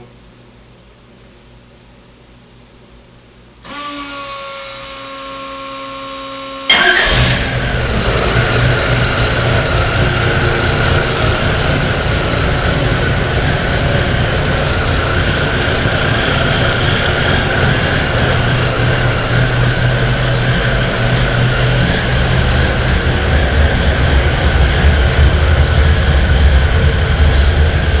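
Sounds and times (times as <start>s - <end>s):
starter whine: 3.6s - 28.0s
engine idling loudly: 6.7s - 28.0s.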